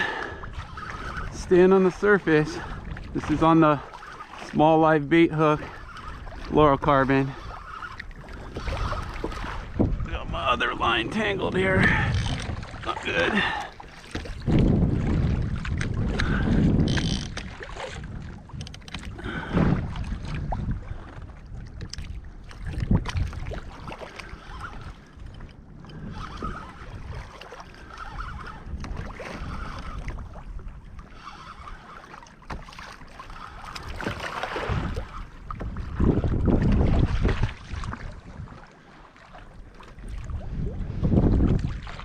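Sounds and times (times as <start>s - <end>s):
water sloshing against hull: 0.0s - 42.0s
wind buffeting microphone: 0.0s - 42.0s.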